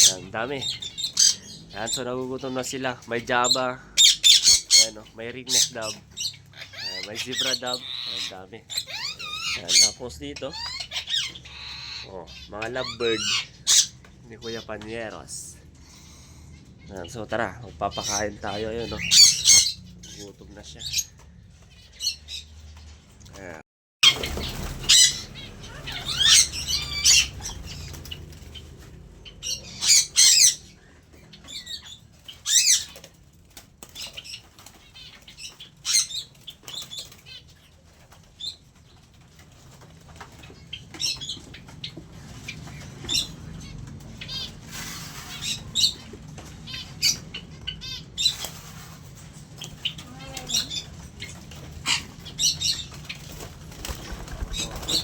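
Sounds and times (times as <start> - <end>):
small birds chirping and squawking: 0.0 - 55.0
wings flapping: 23.4 - 29.2, 48.2 - 55.0.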